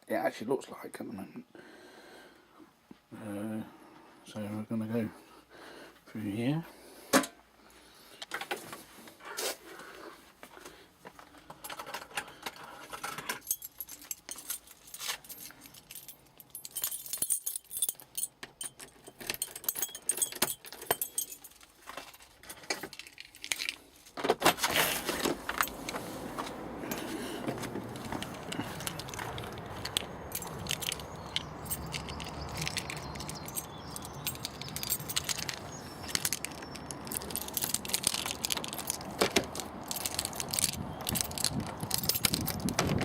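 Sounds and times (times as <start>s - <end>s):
clicking rattling and jangling objects: 11.4s - 43.0s.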